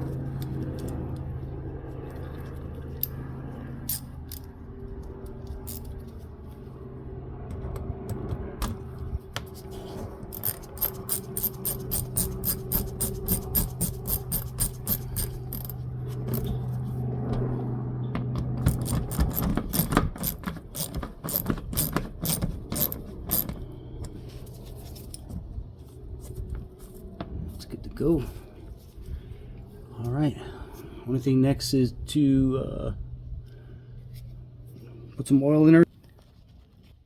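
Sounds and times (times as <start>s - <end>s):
steady low hum: 0.0s - 36.0s
ratchet clicking: 10.3s - 15.8s, 18.7s - 23.6s.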